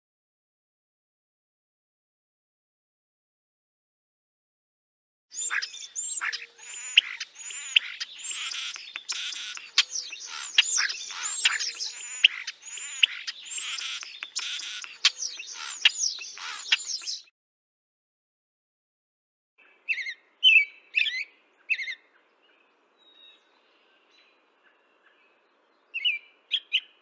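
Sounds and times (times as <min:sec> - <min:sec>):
birds chirping and whistling: 0:05.4 - 0:17.3.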